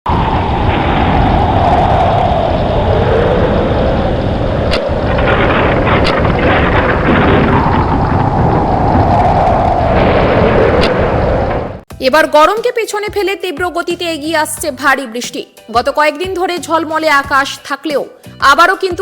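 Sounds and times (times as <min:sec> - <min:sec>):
howling storm wind gusts: 0:00.0 - 0:11.9
sharp cracks: 0:04.6 - 0:11.8.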